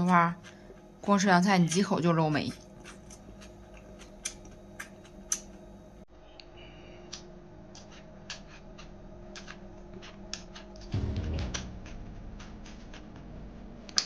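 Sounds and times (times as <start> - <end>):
person chewing with wet clicks: 0.0 - 5.7, 7.1 - 10.9.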